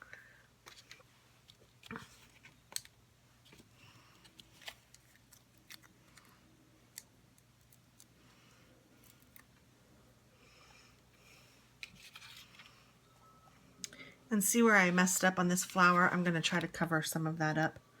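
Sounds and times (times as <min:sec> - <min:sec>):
low steady hum: 0:00.0 - 0:18.0
paper and craft supplies handled: 0:00.6 - 0:06.3, 0:11.8 - 0:12.8, 0:14.8 - 0:16.9.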